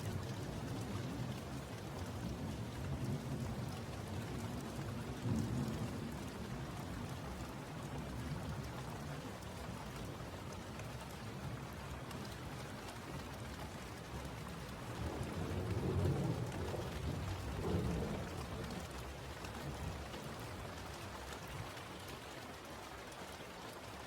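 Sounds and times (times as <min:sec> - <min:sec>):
steady rain falling: 0:00.0 - 0:24.0
thunder rumble: 0:15.0 - 0:19.0.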